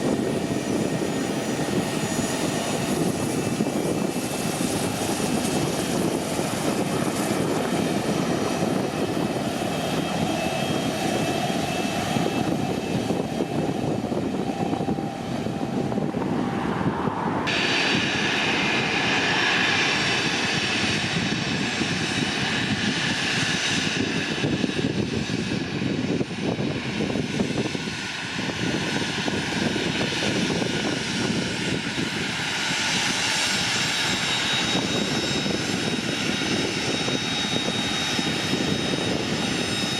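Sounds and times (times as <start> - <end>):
jet engines rushing: 0.0 - 39.9
faint engine whine: 0.8 - 23.0.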